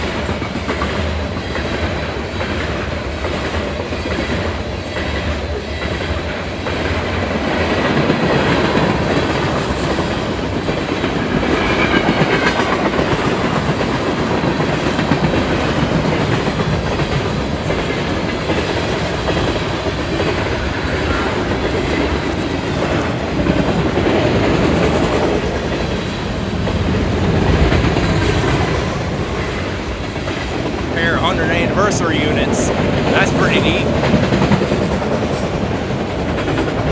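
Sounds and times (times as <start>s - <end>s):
freight train rumbling past: 0.0s - 36.9s.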